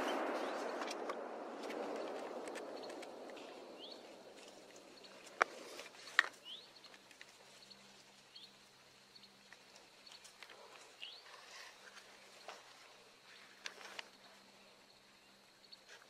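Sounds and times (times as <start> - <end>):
soft rushing noise: 0.0 - 6.2
sharp clicks: 0.6 - 3.6
small bird chirping: 1.8 - 16.0.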